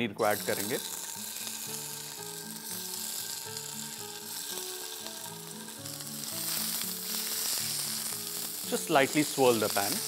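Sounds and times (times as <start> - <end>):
cheese frying in hot oil: 0.2 - 10.0.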